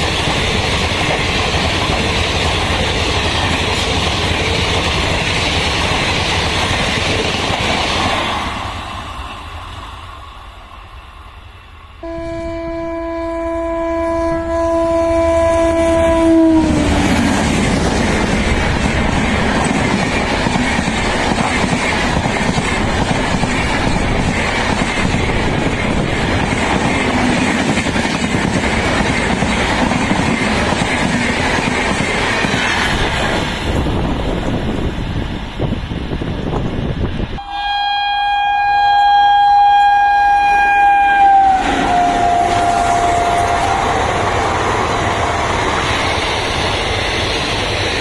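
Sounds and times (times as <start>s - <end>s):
train coaches rushing past: 0.0s - 12.0s, 15.7s - 37.4s, 40.5s - 48.0s
train horn blast: 12.0s - 17.6s, 37.4s - 44.2s.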